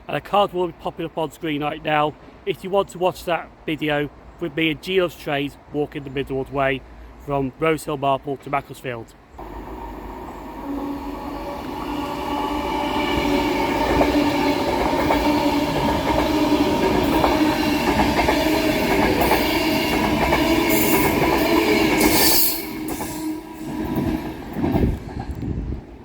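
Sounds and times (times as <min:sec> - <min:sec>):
train passing: 0:09.4 - 0:26.0
train wheel squeals: 0:20.6 - 0:24.1.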